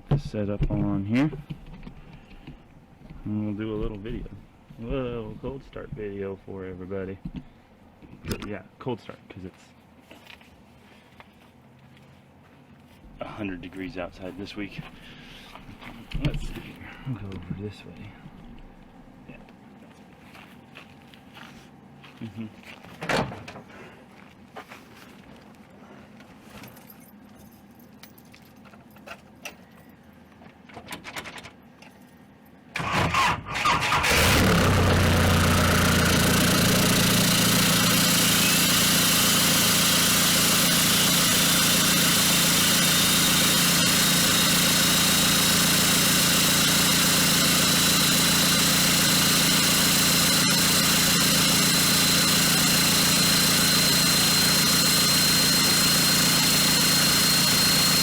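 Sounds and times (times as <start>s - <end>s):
diesel engine starting and idling: 32.8s - 58.0s.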